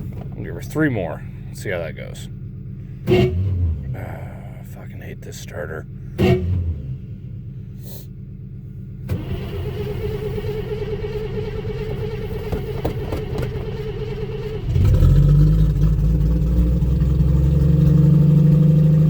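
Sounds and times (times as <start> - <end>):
car engine running: 0.0 - 19.0
car starter cranking: 9.0 - 19.0.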